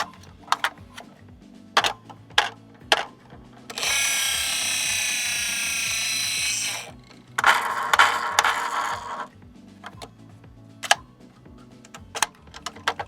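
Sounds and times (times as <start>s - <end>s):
toy truck parts clicking: 1.8s - 10.1s, 11.8s - 13.0s
ratcheting whirr: 2.9s - 9.3s.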